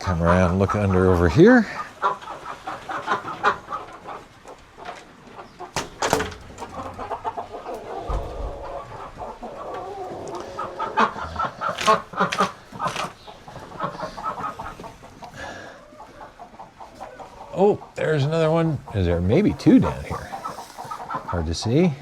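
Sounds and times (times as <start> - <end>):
poultry clucking: 0.0 - 22.0
knocks and rustles of handling: 4.8 - 7.3, 11.7 - 13.7.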